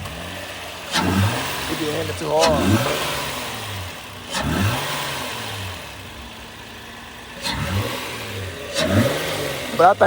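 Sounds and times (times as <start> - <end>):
car engine idling: 0.0 - 10.0
car engine revving: 0.0 - 10.0.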